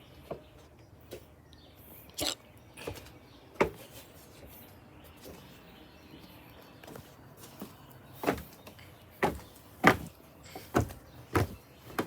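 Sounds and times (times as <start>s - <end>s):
faint outdoor background: 0.0s - 12.0s
irregular knocks and thumps: 10.7s - 12.0s.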